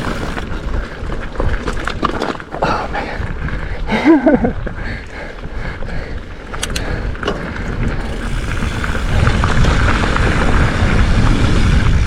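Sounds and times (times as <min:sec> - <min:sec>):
bike rattling clicks: 0:00.0 - 0:12.0
wind and tyres rumbling: 0:00.0 - 0:12.0.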